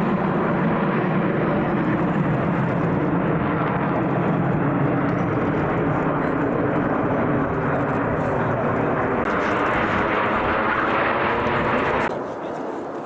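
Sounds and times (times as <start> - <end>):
aircraft engine in flight: 0.0 - 13.0.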